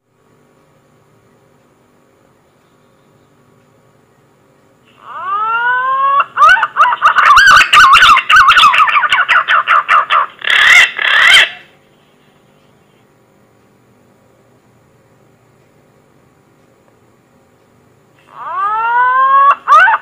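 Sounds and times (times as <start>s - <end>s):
warbling whistled bird call: 4.9s - 11.8s, 18.3s - 20.0s.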